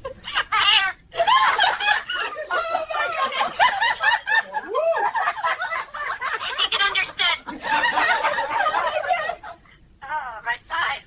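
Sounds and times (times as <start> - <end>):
high-pitched giggling: 0.2 - 4.0.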